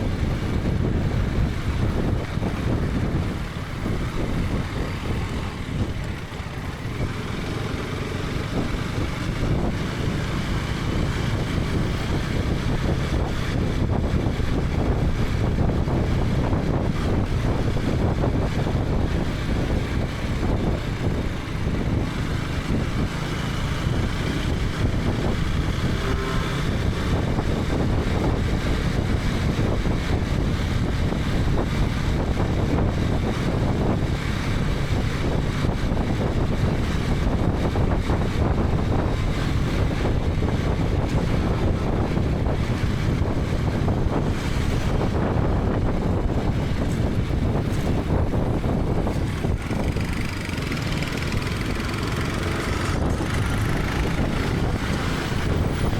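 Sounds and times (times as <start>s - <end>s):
motorcycle engine running: 0.0s - 55.9s
wind noise on microphone: 0.0s - 55.9s.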